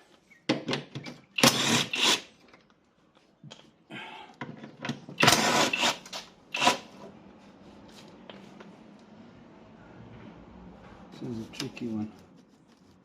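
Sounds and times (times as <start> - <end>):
power tool running: 1.4 - 2.2, 5.2 - 6.8.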